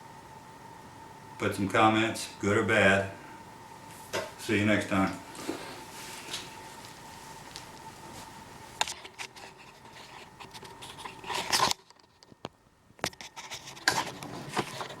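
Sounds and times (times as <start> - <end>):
rustling scrape: 9.0 - 11.8, 13.2 - 15.0.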